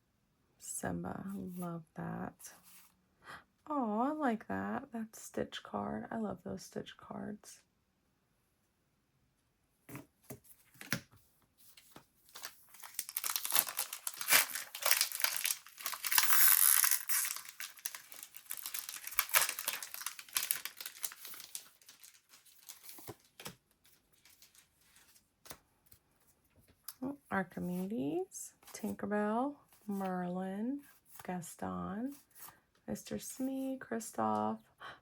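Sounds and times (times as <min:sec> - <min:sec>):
plastic wrapper crinkling: 0:11.8 - 0:25.2.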